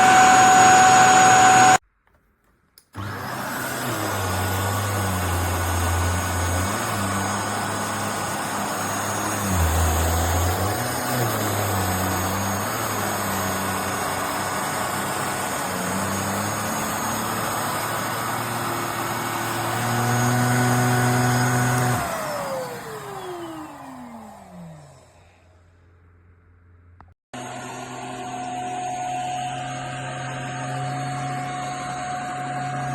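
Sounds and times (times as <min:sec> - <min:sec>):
handheld vacuum running: 0:00.0 - 0:01.8, 0:02.9 - 0:25.6, 0:27.4 - 0:32.9
vacuum motor winding down: 0:00.0 - 0:01.8, 0:02.9 - 0:25.6, 0:27.4 - 0:32.9.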